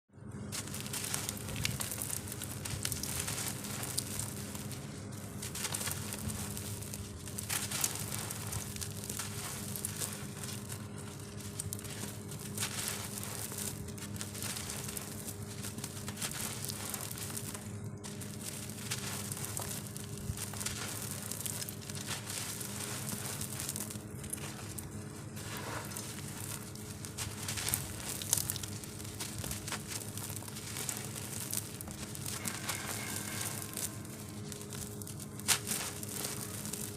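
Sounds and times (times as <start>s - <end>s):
dry shapes crunching and crumbling: 0.2s - 36.9s.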